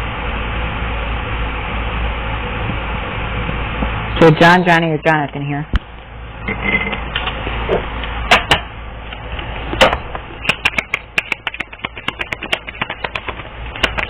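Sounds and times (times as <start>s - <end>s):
irregular clicking and tapping: 9.8s - 14.0s.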